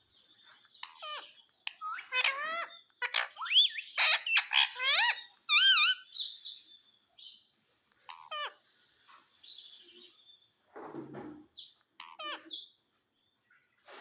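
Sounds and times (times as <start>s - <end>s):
parrot soft chatter: 8.0s - 8.6s, 12.0s - 12.5s.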